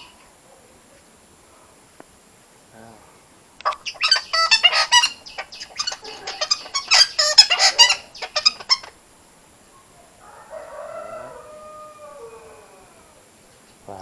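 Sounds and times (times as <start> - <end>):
parakeets squawking: 3.6 - 9.0.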